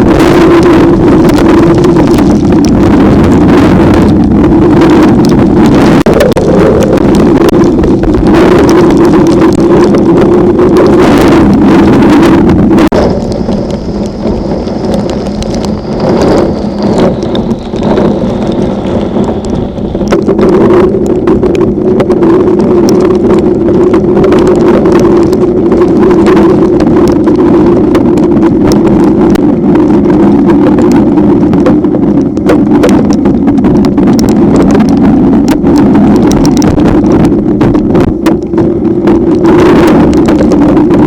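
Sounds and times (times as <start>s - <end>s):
low hum: 0.0s - 32.4s
heavy rain: 0.0s - 41.0s
raindrops pattering: 0.0s - 41.0s
wind: 0.0s - 41.0s.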